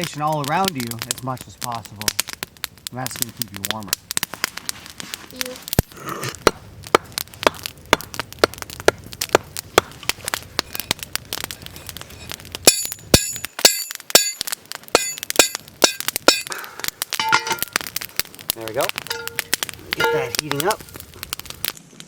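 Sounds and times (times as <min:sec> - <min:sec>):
campfire crackling and popping: 0:00.0 - 0:22.0
metallic clinks of cookware: 0:17.2 - 0:17.8.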